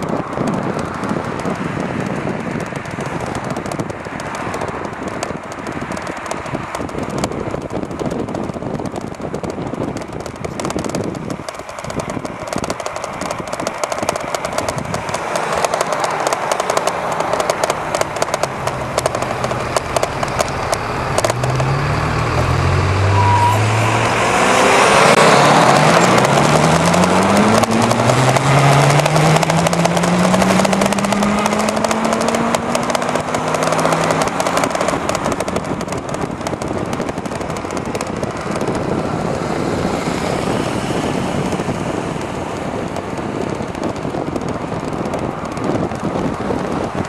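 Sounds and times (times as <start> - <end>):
road rattle: 0.0 - 47.0
wind buffeting microphone: 0.0 - 47.0
low hum rising in pitch: 17.8 - 35.1.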